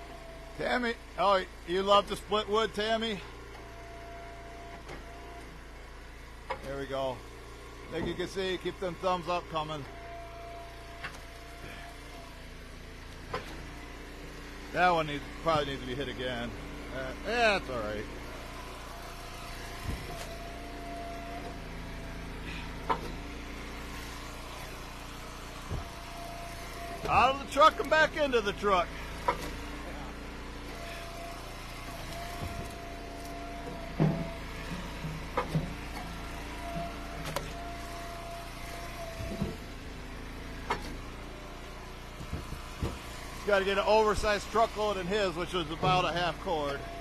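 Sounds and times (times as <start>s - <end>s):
hydraulic whine: 0.0s - 47.0s
wood splitter engine running: 0.0s - 47.0s
thin steady whine: 14.7s - 34.8s.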